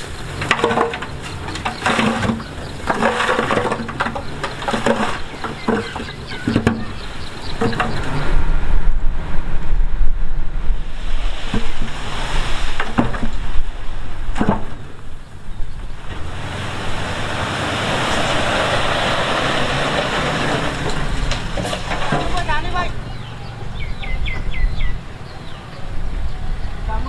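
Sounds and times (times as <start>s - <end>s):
diesel machinery rumbling: 0.0s - 27.0s
sharp knocks: 0.4s - 8.2s.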